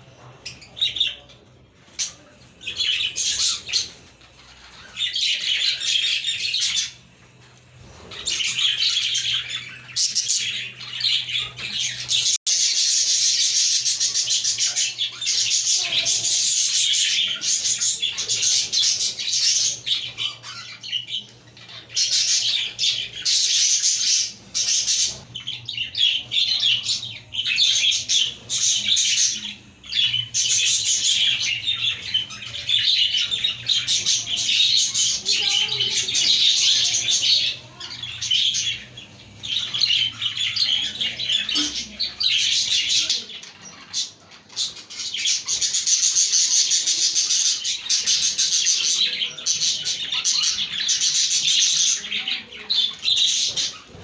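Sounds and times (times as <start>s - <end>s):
budgerigars chattering and chirping: 0.0s - 54.0s.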